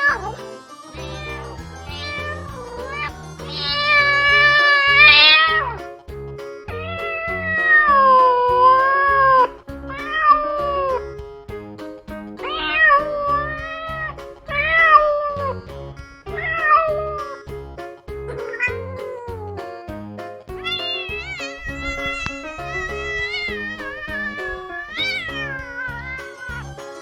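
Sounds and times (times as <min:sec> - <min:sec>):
cat meowing: 0:01.0 - 0:05.6, 0:20.6 - 0:26.8.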